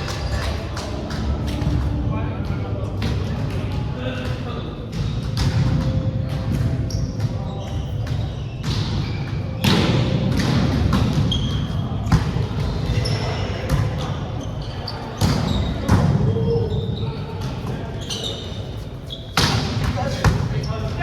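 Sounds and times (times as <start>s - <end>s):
volleyball hits and bounces: 0.0s - 14.2s, 19.4s - 20.5s
sneakers squeaking on court: 2.7s - 21.0s.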